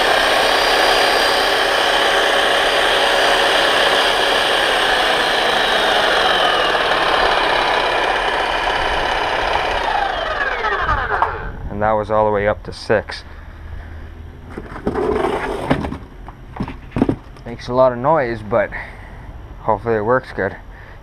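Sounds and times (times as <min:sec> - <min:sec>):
electric jackhammer motor running: 0:00.0 - 0:11.6.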